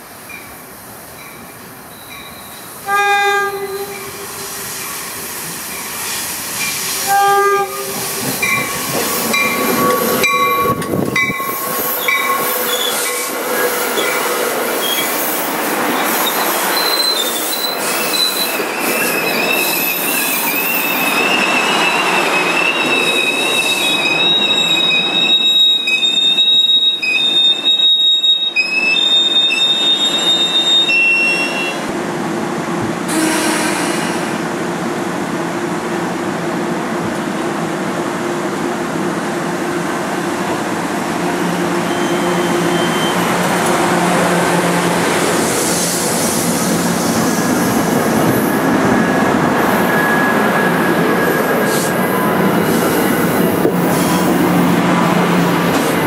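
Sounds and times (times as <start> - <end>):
train rumbling past: 0.1 - 25.4, 31.6 - 56.0
train wheels squealing: 1.2 - 2.8, 7.9 - 31.8, 41.8 - 43.4, 45.3 - 54.4
train horn blasts: 2.8 - 4.2, 7.0 - 8.6, 33.1 - 34.2.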